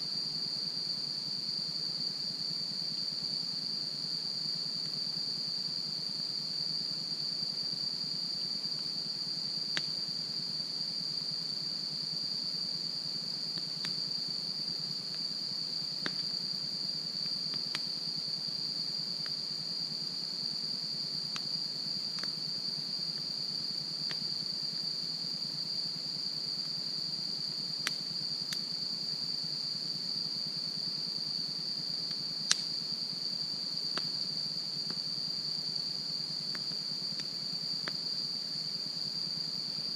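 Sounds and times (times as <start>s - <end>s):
insects chirring: 0.0s - 39.9s
campfire crackling and popping: 17.5s - 17.9s, 32.4s - 32.7s.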